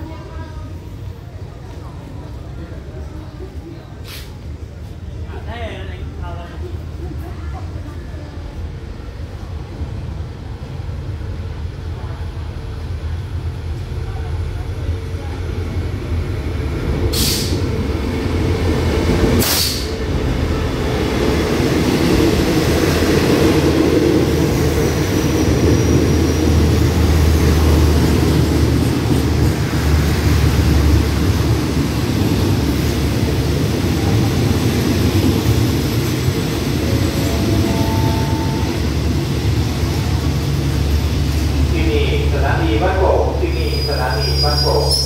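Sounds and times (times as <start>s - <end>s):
train rumbling on rails: 0.0s - 45.0s
short sharp hisses: 4.0s - 4.4s, 17.1s - 17.6s, 19.4s - 20.0s.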